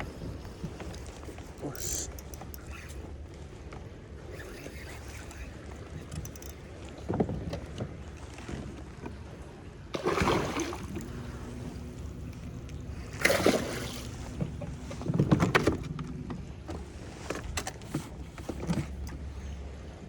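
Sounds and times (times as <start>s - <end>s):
wind: 0.0s - 20.0s
water splashing: 10.0s - 15.1s.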